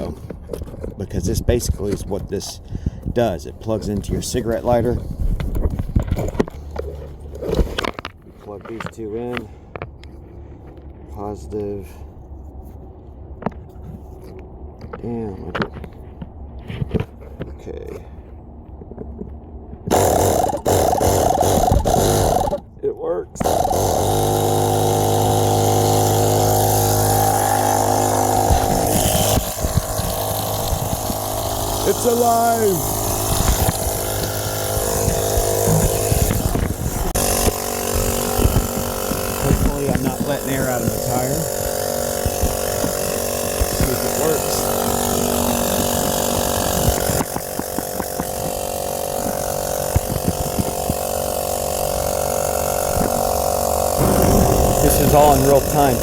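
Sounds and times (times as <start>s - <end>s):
air compressor running: 19.9s - 22.6s, 23.4s - 56.0s.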